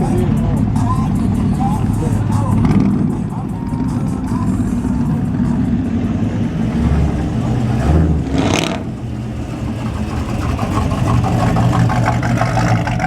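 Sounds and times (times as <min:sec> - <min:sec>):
truck engines rumbling: 0:00.0 - 0:13.0.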